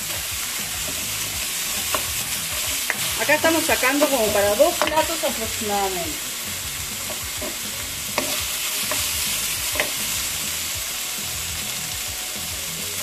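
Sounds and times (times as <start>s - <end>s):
meat and onion sizzling in wok: 0.0s - 13.0s.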